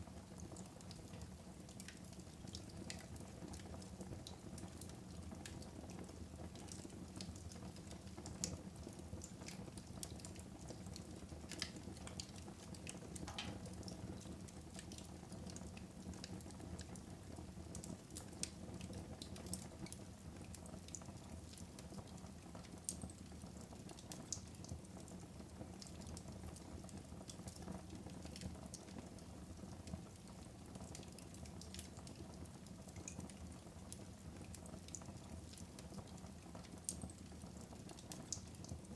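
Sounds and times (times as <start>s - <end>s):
wood fire crackling: 0.0s - 38.9s
fire popping: 12.8s - 14.5s.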